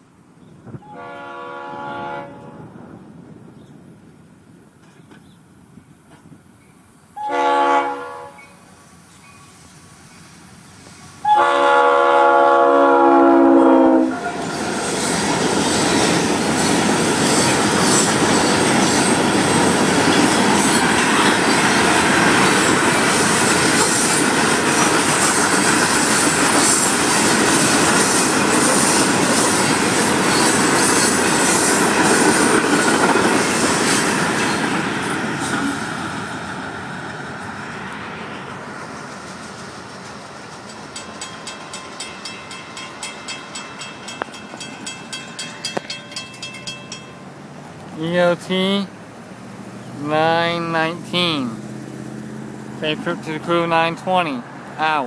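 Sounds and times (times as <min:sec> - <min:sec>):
locomotive air horn: 0:00.8 - 0:02.8, 0:07.2 - 0:08.6, 0:11.2 - 0:14.5
train wheels clattering on rails: 0:14.3 - 0:37.5, 0:38.4 - 0:47.9.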